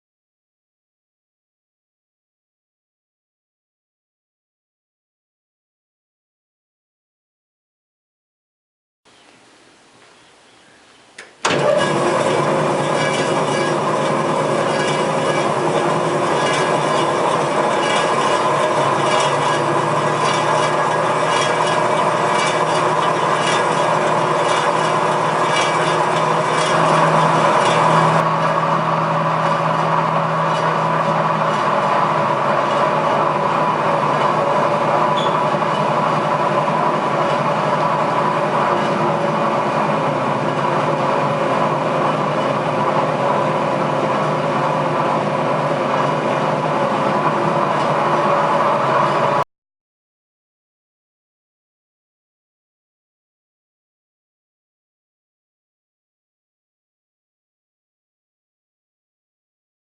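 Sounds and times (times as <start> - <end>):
band saw motor and blade running: 11.4 - 49.4.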